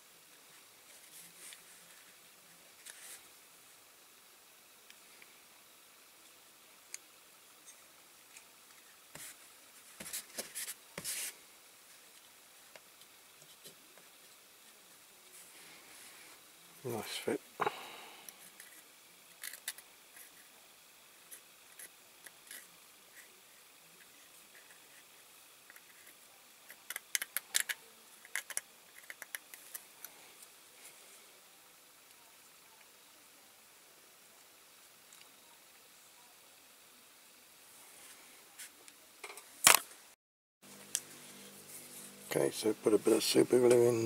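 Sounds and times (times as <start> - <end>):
small model parts clicking: 19.4 - 19.9, 26.7 - 30.1.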